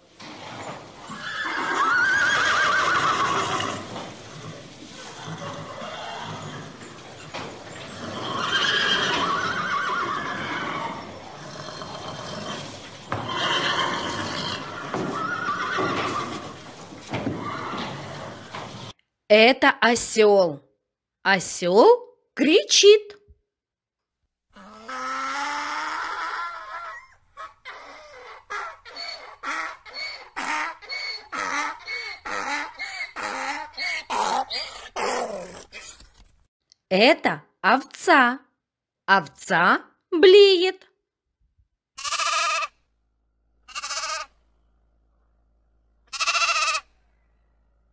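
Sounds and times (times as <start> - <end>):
horse whinnying: 0.2 - 18.9, 28.0 - 35.8, 42.0 - 42.7, 43.7 - 44.3, 46.1 - 46.9
donkey braying: 0.4 - 18.8, 24.6 - 36.0, 42.0 - 42.7, 43.7 - 44.4, 46.1 - 46.9.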